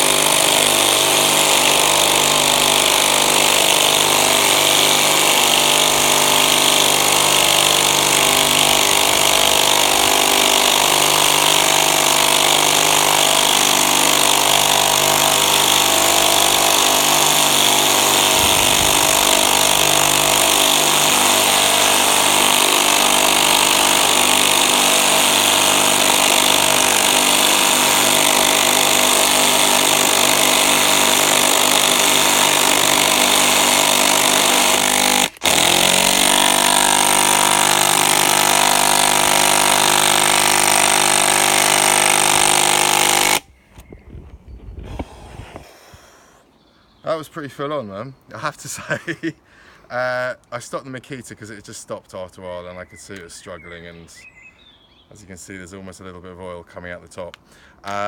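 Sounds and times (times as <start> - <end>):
impact drivers driving screws: 0.0 - 43.4.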